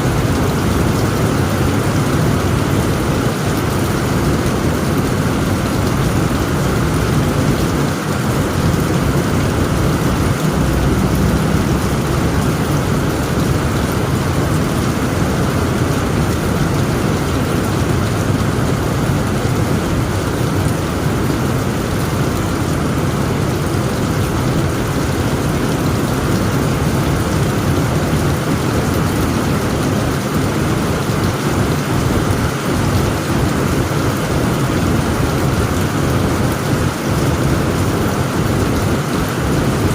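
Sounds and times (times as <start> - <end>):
heavy rain on a tent roof: 0.0 - 39.9
low rumble of thunder: 3.8 - 19.2.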